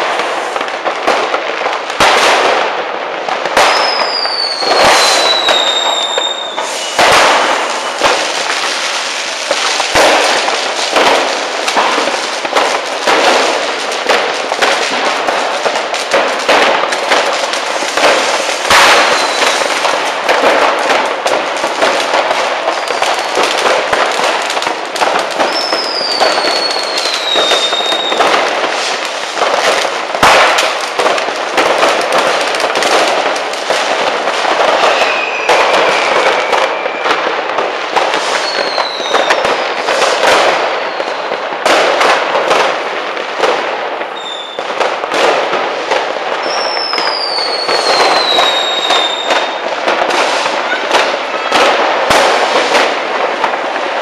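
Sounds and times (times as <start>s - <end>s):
firecrackers crackling and banging: 0.0s - 54.0s
whistling fireworks: 0.0s - 54.0s
heavy firework bang: 3.5s - 8.8s, 9.4s - 40.8s.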